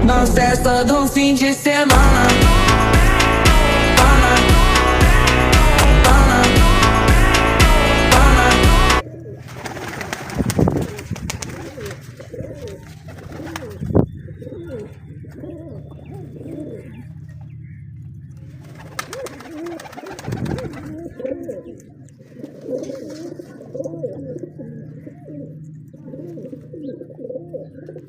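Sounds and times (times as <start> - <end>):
pop song: 0.0 - 9.0
steady low hum: 0.0 - 9.0
pigeons cooing: 9.0 - 28.0.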